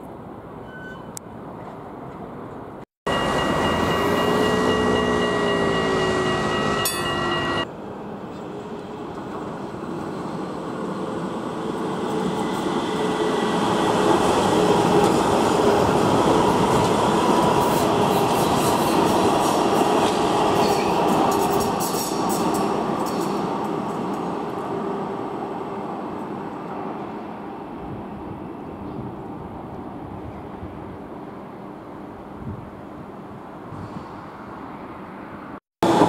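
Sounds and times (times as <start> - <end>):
faint squealing tone: 0.6 - 1.2
steady held tones: 3.1 - 7.7.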